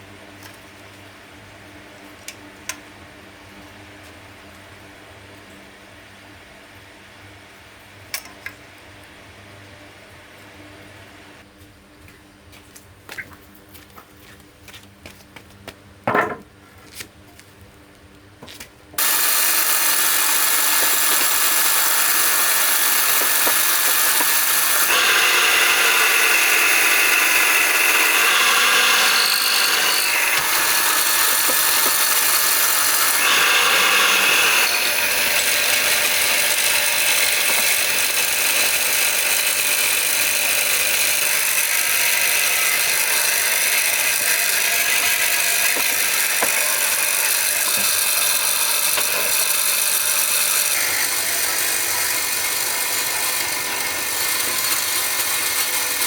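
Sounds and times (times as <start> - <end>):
handheld power tool running: 19.0 - 56.0.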